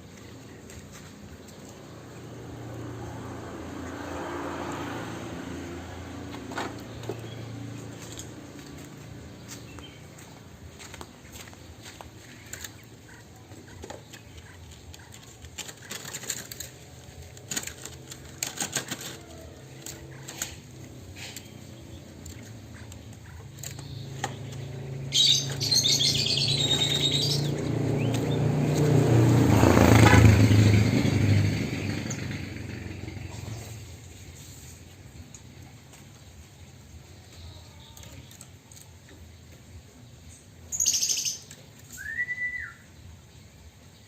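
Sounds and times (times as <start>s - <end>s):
engine-like drone: 0.0s - 36.4s
bird wings fluttering: 14.5s - 21.4s
bird chirping: 21.2s - 28.9s, 37.2s - 44.0s.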